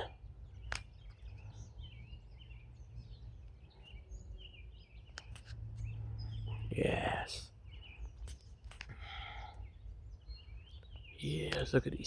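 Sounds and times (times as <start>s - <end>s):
faint bird chirps: 0.0s - 12.0s
sharp clicks: 0.6s - 1.2s.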